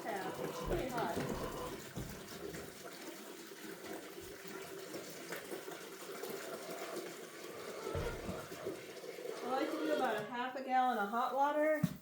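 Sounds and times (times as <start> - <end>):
water running from tap: 0.0 - 10.3.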